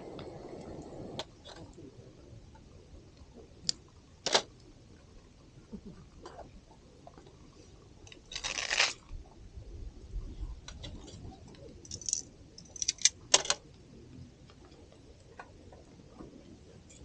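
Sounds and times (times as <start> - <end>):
rustle or scrape: 8.2 - 9.0.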